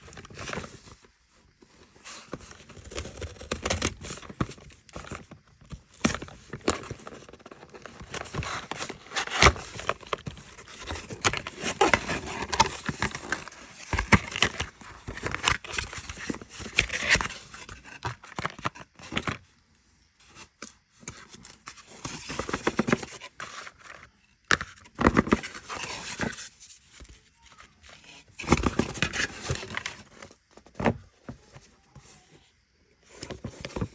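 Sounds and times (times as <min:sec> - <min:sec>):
paper and cardboard rustling: 0:00.0 - 0:19.4, 0:21.0 - 0:32.4, 0:33.0 - 0:33.9.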